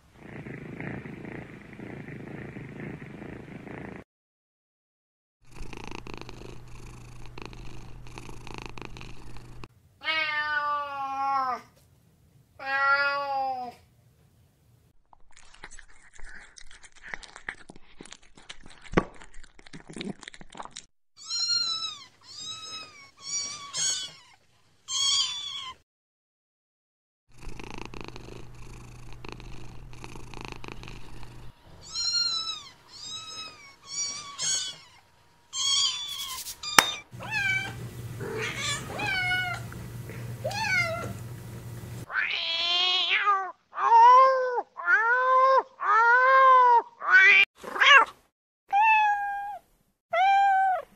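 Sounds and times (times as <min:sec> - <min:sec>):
cat meowing: 0:10.0 - 0:11.6, 0:31.8 - 0:39.7, 0:40.4 - 0:41.2, 0:48.7 - 0:50.9
soft rustling: 0:35.9 - 0:36.8.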